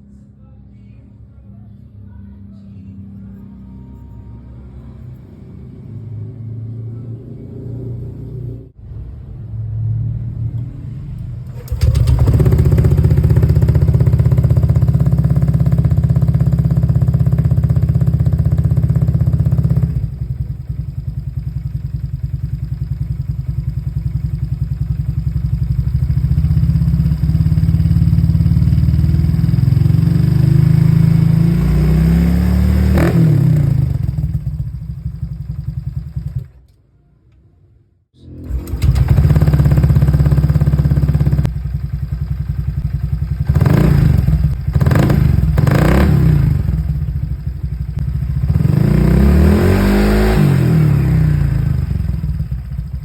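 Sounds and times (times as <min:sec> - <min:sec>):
engine revving: 0:09.8 - 0:20.9, 0:25.5 - 0:36.5, 0:38.2 - 0:41.7, 0:42.7 - 0:53.0
scooter engine running: 0:11.4 - 0:36.6, 0:38.2 - 0:53.0.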